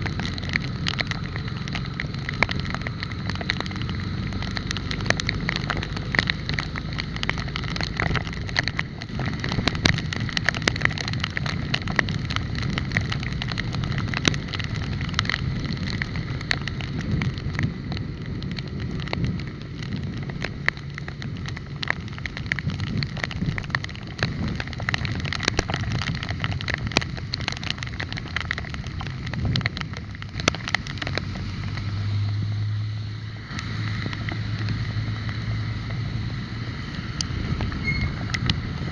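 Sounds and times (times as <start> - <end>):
bicycle road rumble: 0.0 - 38.9
wind on microphone: 7.7 - 32.6, 33.3 - 38.9.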